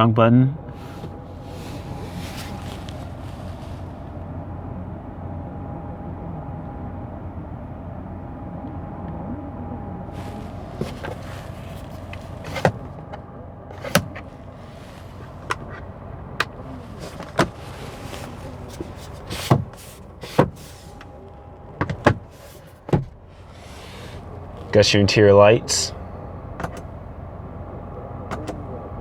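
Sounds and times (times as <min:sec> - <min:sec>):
steady low hum: 0:00.0 - 0:29.0
car switches and buttons clicking: 0:10.2 - 0:23.3, 0:26.6 - 0:27.1, 0:28.3 - 0:28.7.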